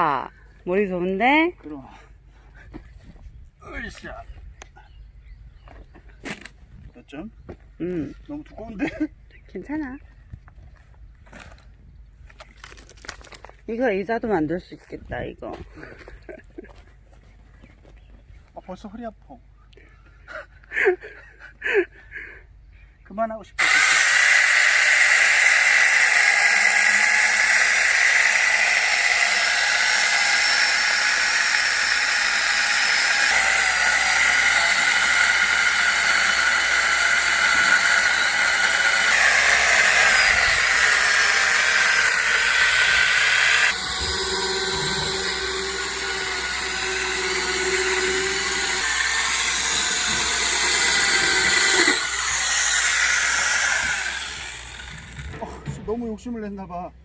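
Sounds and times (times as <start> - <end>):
electric chainsaw cutting log: 23.6 - 55.5.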